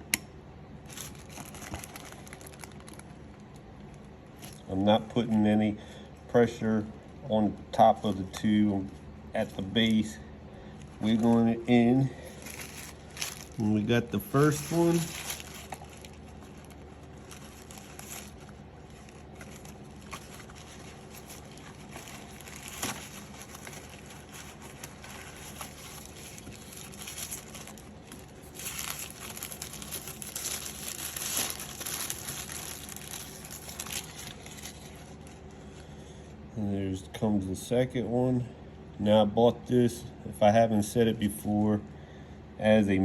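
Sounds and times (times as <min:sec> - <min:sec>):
low steady hum: 0:00.0 - 0:43.0
gloved hands rustling and crinkling: 0:00.8 - 0:05.3, 0:07.7 - 0:36.0.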